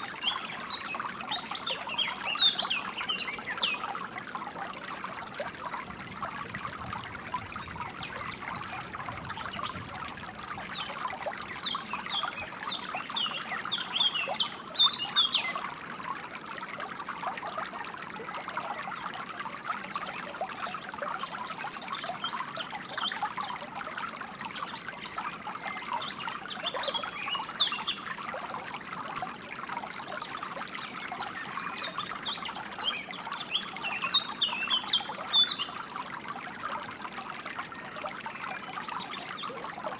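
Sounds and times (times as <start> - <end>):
songbirds chirping: 0.0 - 4.4, 10.5 - 15.7, 24.3 - 28.2, 30.0 - 36.0
water trickling in a stream: 0.0 - 39.9.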